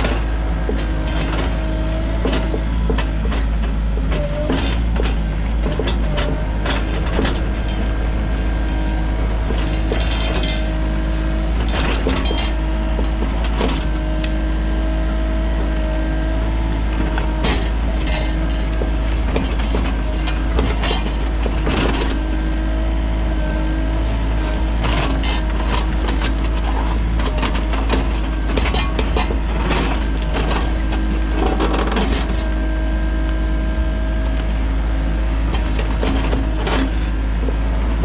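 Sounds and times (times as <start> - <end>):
metallic clanks and knocks: 0.0 - 8.0, 9.4 - 14.3, 17.0 - 22.2, 24.8 - 32.6
excavator diesel engine running: 0.0 - 38.0.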